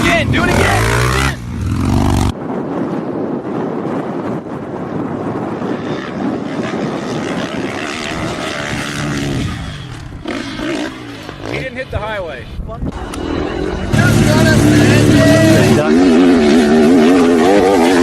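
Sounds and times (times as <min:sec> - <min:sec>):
dirt bike engine revving: 0:00.0 - 0:02.3, 0:06.2 - 0:11.9, 0:12.9 - 0:18.0
strong rushing noise: 0:00.0 - 0:18.0.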